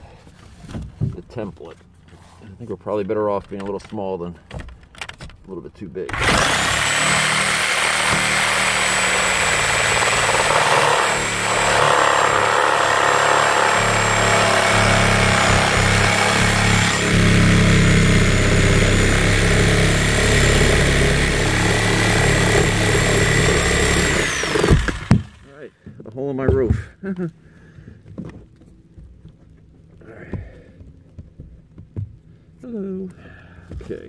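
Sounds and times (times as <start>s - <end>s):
power saw cutting: 6.1s - 25.5s.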